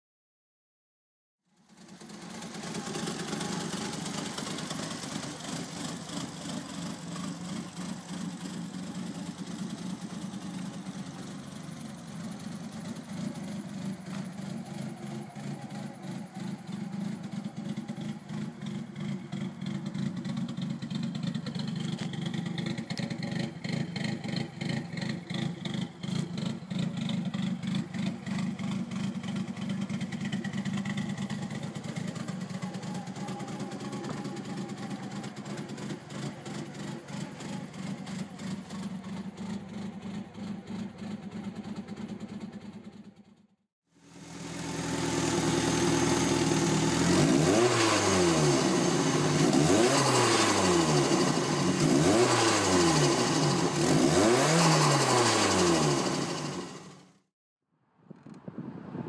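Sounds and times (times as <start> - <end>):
car engine idling: 1.6 - 43.4, 44.0 - 57.2.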